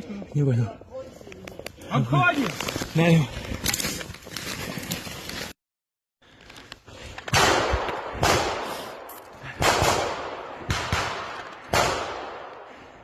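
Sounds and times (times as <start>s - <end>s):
loud gunshots with echo: 9.6s - 12.5s.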